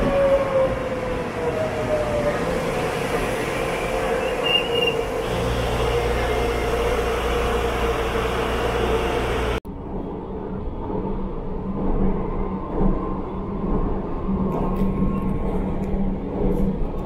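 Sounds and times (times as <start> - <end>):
train running with whine: 0.0 - 9.6
rumble inside moving train: 0.0 - 17.0
high wheel squeal: 3.1 - 9.6
low hum: 4.9 - 16.9.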